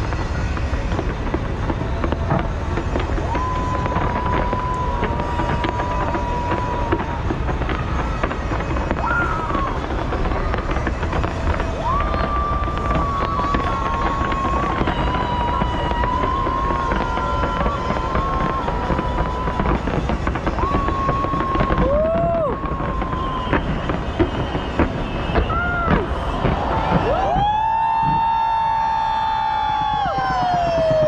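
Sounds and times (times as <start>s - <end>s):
fireworks crackling and popping: 0.0s - 31.0s
high whistling tone: 20.6s - 27.6s.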